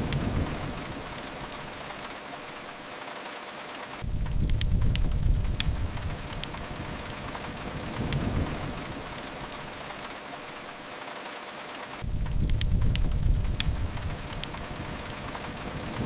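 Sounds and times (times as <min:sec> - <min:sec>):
steady rain hiss: 0:00.0 - 0:16.0
wood fire crackles: 0:00.0 - 0:16.0
deep low rumble: 0:04.0 - 0:06.8, 0:12.0 - 0:14.6.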